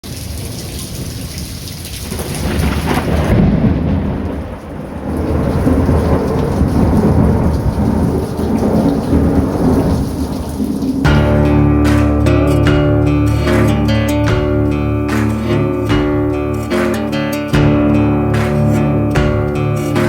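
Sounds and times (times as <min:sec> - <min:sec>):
heavy rain: 0:00.0 - 0:20.0
rolling thunder: 0:02.1 - 0:11.0.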